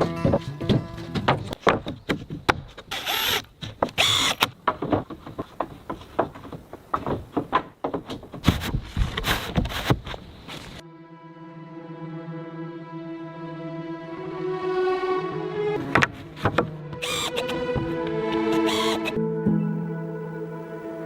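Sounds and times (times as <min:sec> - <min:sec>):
background music with held notes: 0:00.0 - 0:01.6, 0:10.8 - 0:21.0
wood scraping: 0:00.0 - 0:10.8, 0:15.8 - 0:19.2
hammering on wooden boards: 0:15.8 - 0:17.2.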